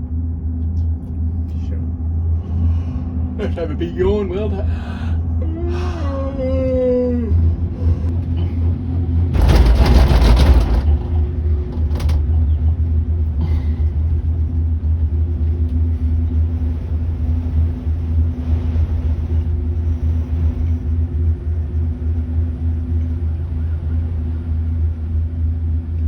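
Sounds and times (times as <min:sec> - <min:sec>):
cable car rumble and hum: 0:00.0 - 0:26.0
rushing noise: 0:08.8 - 0:12.1.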